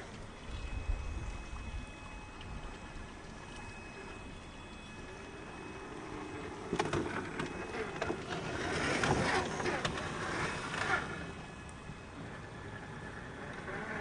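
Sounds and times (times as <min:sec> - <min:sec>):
small motor and tyre noise: 0:00.0 - 0:14.0.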